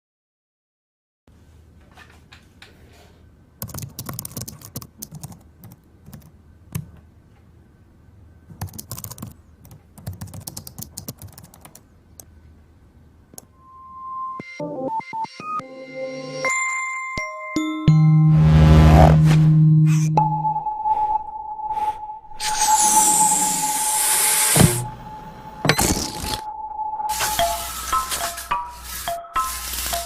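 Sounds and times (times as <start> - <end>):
musical tone: 13.5 - 29.6.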